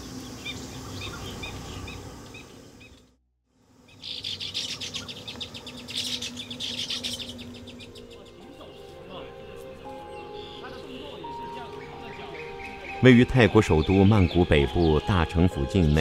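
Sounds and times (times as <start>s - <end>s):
dense chatter of many birds: 3.9s - 16.0s.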